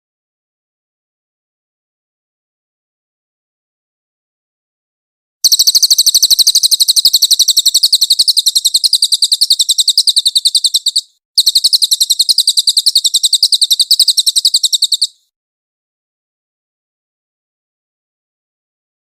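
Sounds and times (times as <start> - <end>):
songbird trilling: 5.4 - 15.2.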